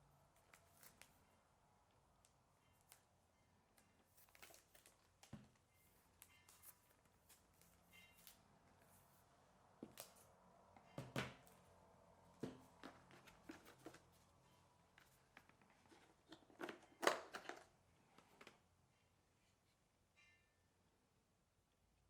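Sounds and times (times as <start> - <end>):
hands tapping and knocking box: 12.4 - 14.1
packaging rustling: 12.7 - 14.3.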